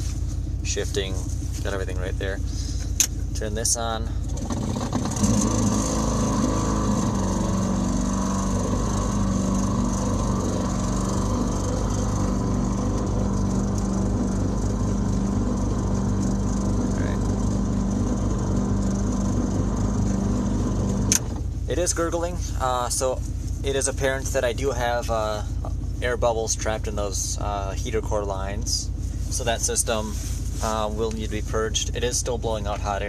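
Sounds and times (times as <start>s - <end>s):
heater blower fan running: 0.0s - 24.3s
engine idling: 0.0s - 33.0s.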